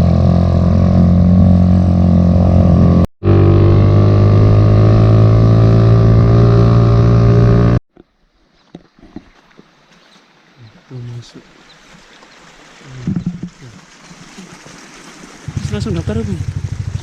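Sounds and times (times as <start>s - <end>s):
motorcycle engine running: 0.0s - 7.8s, 15.5s - 17.0s.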